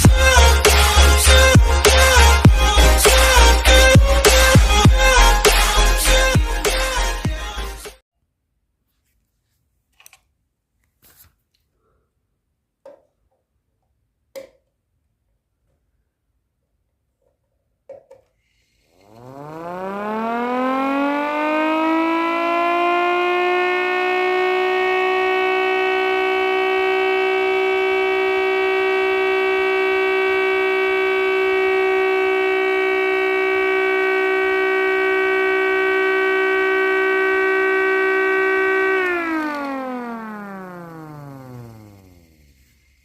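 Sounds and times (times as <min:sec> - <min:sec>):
mechanical siren wailing: 0:00.0 - 0:07.6, 0:19.0 - 0:43.0
siren click: 0:19.0 - 0:42.8.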